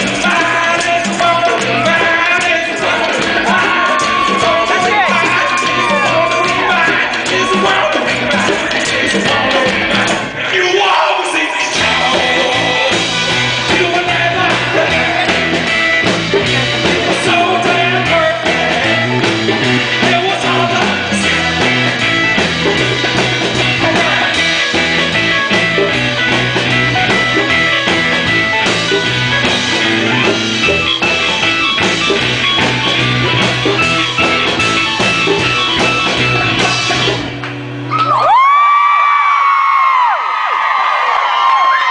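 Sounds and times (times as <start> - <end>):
person singing: 0.0 - 26.3, 35.0 - 37.4
live rock band playing: 0.0 - 38.6.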